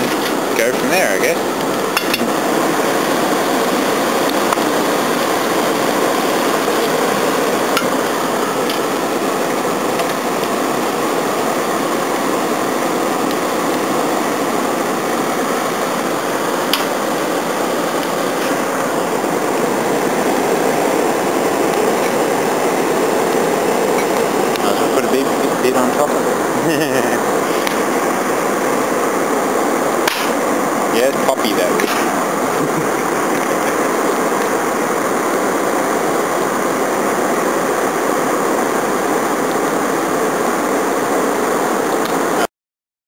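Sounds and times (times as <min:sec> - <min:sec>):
electric blower fan rushing: 0:00.0 - 0:42.5
faint clicks from fire: 0:01.6 - 0:02.4, 0:08.6 - 0:09.0, 0:13.2 - 0:13.8, 0:16.7 - 0:17.3, 0:30.0 - 0:30.4.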